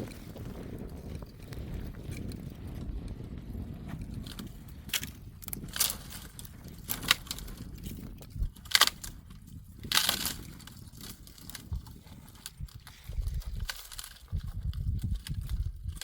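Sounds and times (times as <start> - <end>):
dry twigs crunching: 3.8 - 16.0.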